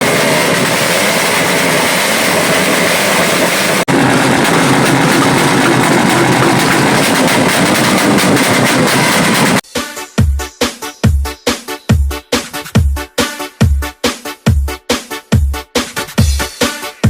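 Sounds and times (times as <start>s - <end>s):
loud vehicle engine: 0.0s - 9.6s.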